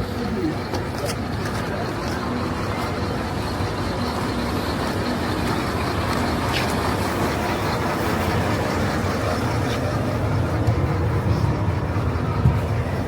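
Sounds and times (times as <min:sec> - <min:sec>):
vehicle engine and road rumble: 0:00.0 - 0:13.0
low bumps: 0:06.0 - 0:13.0.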